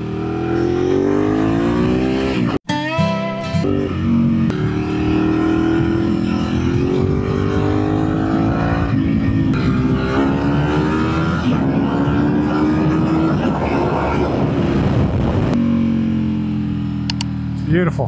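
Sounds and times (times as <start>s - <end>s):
motorcycle engine revving: 0.0s - 2.6s, 3.6s - 18.0s.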